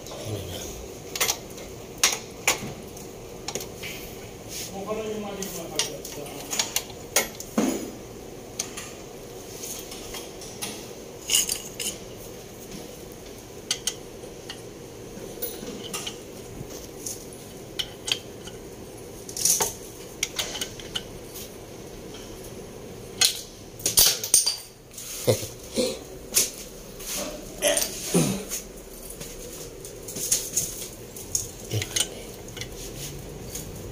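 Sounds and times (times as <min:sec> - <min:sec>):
metal tools clinking: 0:09.8 - 0:12.2, 0:13.7 - 0:18.6, 0:23.2 - 0:24.8, 0:27.3 - 0:32.8.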